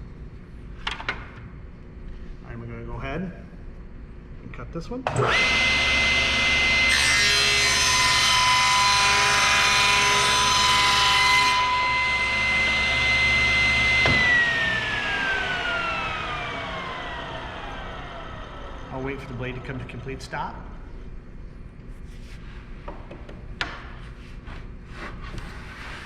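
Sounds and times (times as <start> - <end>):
table saw cutting wood: 5.1 - 20.0.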